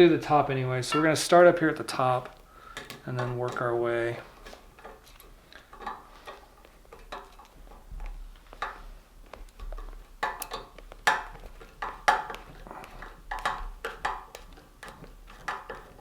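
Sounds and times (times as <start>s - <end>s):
metallic clinks on seat frame: 8.5s - 16.0s.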